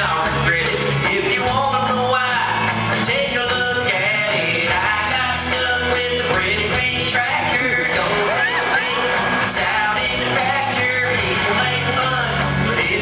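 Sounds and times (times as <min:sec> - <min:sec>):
instrumental accompaniment: 0:00.0 - 0:13.0
man singing country song: 0:00.0 - 0:13.0.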